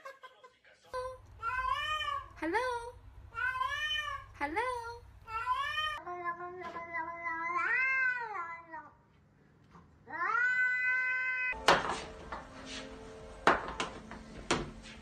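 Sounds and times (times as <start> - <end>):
cat meowing: 3.3 - 4.3, 5.3 - 8.8, 10.1 - 11.6.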